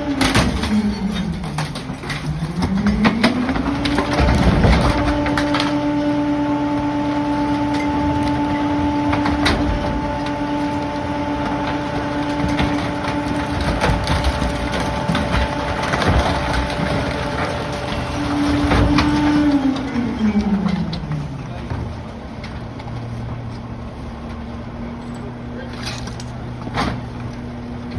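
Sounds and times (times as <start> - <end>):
garbage truck engine hum: 0.0 - 27.9
debris cracking and snapping: 7.7 - 21.2.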